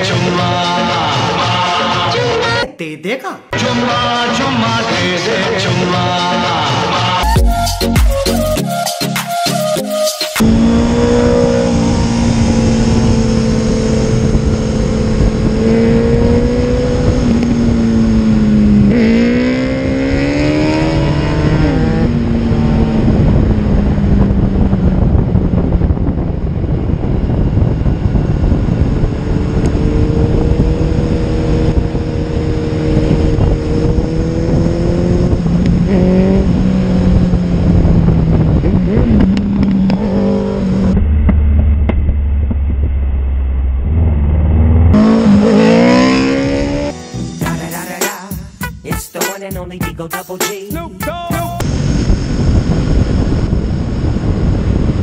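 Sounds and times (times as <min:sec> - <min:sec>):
wind rush: 0:10.4 - 0:47.0, 0:51.6 - 0:55.0
motorcycle engine: 0:10.4 - 0:47.7, 0:51.6 - 0:55.0.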